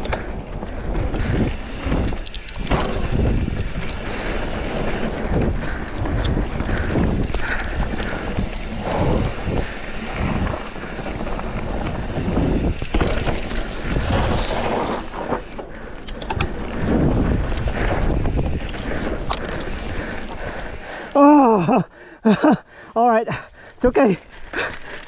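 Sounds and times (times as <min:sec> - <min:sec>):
wind buffeting microphone: 0:00.0 - 0:21.1
rattling clicks: 0:00.0 - 0:21.2
bike tyre noise: 0:00.0 - 0:25.0.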